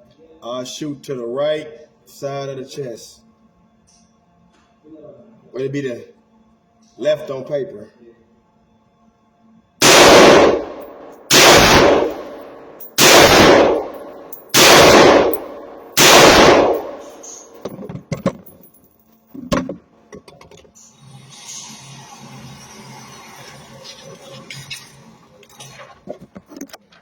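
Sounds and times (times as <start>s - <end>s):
gunshots: 9.8s - 17.9s.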